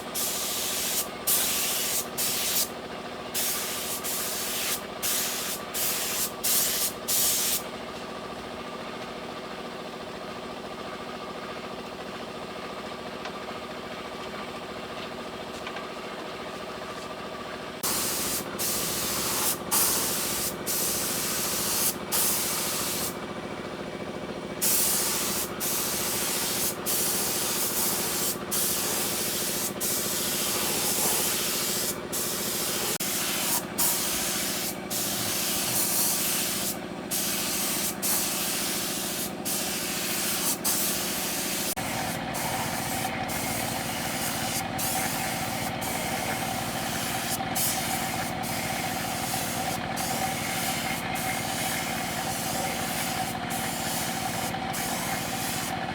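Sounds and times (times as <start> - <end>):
spray gun hissing: 0.0 - 2.7, 3.4 - 7.6, 17.8 - 23.2, 24.6 - 55.9
compressor hum: 0.0 - 9.5, 12.8 - 55.9.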